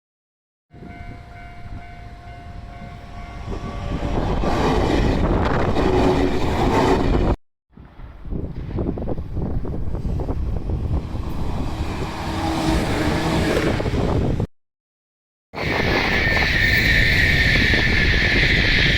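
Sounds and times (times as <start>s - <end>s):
train passing: 0.7s - 7.4s, 8.0s - 14.5s.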